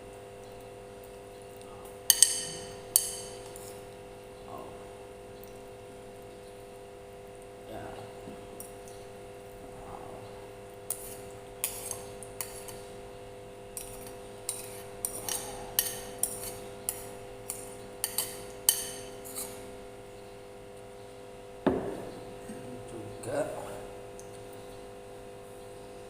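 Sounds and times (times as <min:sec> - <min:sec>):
steady low hum: 0:00.0 - 0:26.0
spoon clinking against plate: 0:02.1 - 0:03.8, 0:13.8 - 0:19.6
heavy knock: 0:21.7 - 0:22.2.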